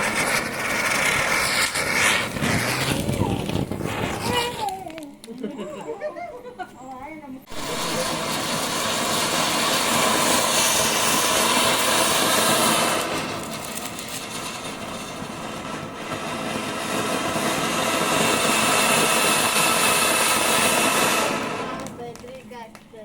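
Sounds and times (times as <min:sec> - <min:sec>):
ground firework hissing: 0:00.0 - 0:06.1, 0:07.4 - 0:23.0.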